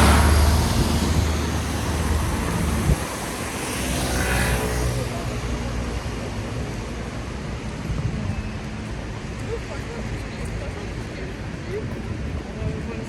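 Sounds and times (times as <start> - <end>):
vehicle engine passing: 0.0 - 6.0
traffic hiss on wet street: 0.0 - 13.0.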